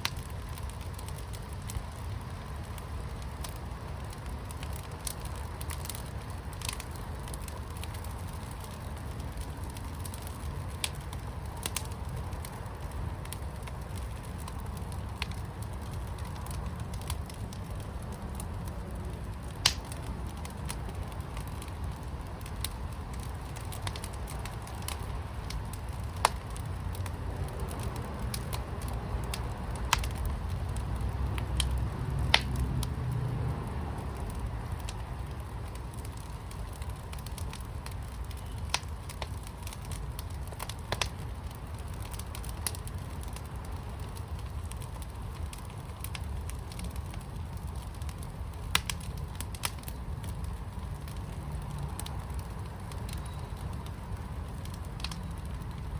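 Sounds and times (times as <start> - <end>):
fire crackles and pops: 0.0 - 55.9
low rumble of flames: 0.0 - 55.9.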